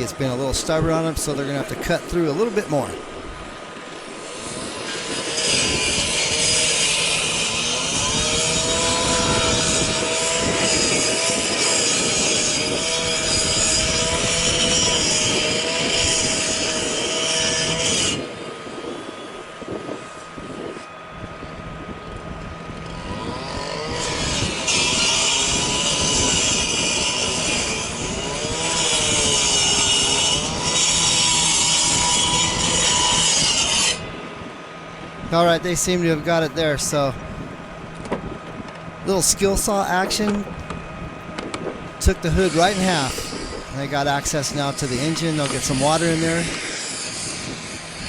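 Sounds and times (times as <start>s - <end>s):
grinding hiss: 0.0s - 18.3s, 23.0s - 34.2s, 39.0s - 40.9s, 41.6s - 48.0s
rescue saw engine running: 0.0s - 48.0s.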